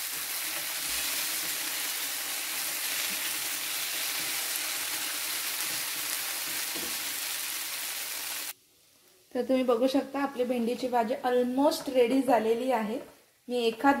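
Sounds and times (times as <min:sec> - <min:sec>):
okra sizzling in oil: 0:00.0 - 0:11.2.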